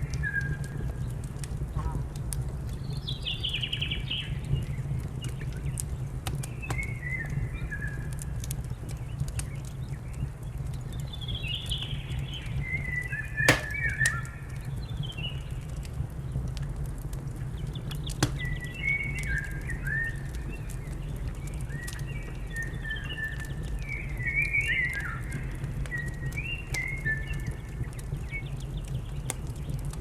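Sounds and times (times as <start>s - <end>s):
wood fire crackling and popping: 0.0s - 30.0s.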